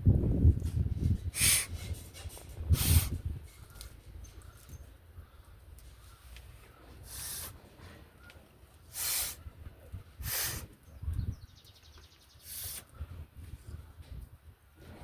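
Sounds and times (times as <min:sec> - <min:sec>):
short hissing spurts: 0:01.3 - 0:01.9, 0:02.6 - 0:03.3, 0:07.0 - 0:07.6, 0:08.9 - 0:09.4, 0:10.2 - 0:10.8, 0:12.4 - 0:13.0.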